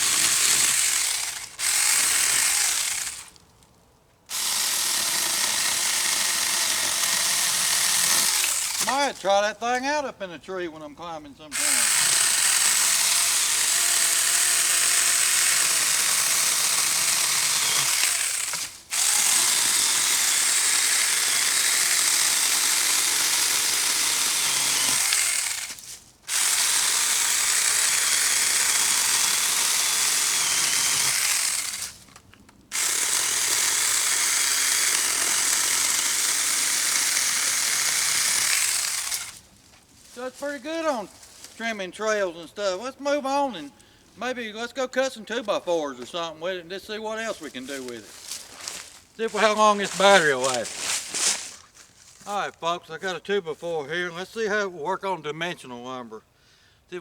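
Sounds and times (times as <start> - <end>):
electric chainsaw cutting wood: 0.0 - 3.4, 4.3 - 9.0, 11.5 - 39.4, 48.2 - 51.5.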